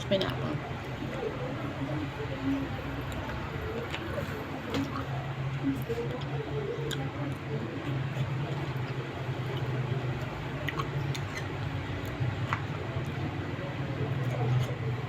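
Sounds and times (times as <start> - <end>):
steady low hum: 0.0 - 15.0
eating mouth sounds and clicks: 5.8 - 13.2.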